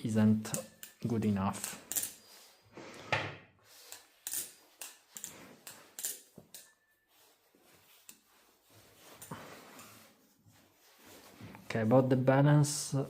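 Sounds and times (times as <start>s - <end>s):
metallic clicks of knife handles: 0.5s - 2.2s, 3.9s - 6.7s.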